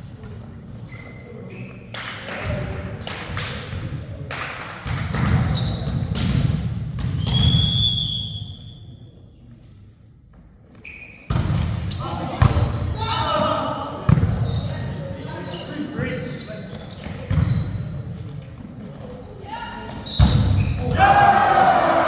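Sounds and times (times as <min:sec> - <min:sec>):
shoe squeaks on floor: 0:00.8 - 0:01.9, 0:05.5 - 0:06.0, 0:10.7 - 0:11.3, 0:14.4 - 0:20.8
players shouting: 0:20.8 - 0:22.0.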